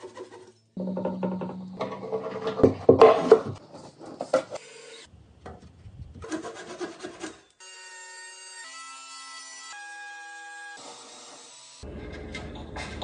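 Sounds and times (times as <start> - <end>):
wood rubbing and scraping: 0.0 - 4.6.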